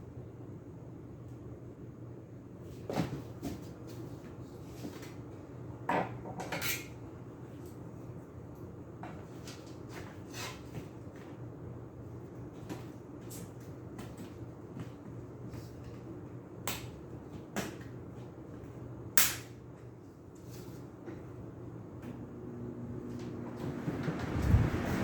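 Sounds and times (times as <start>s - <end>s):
sharp loud snap: 19.2s - 19.6s
low hum: 22.0s - 25.0s.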